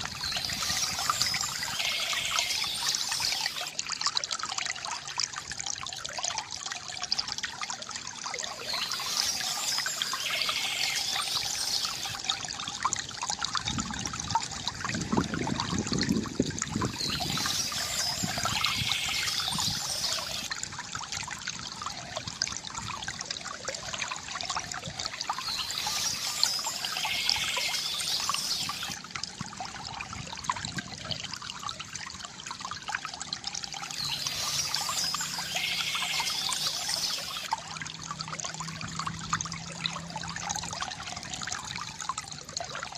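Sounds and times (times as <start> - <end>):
water trickling from fountain: 0.0 - 42.9.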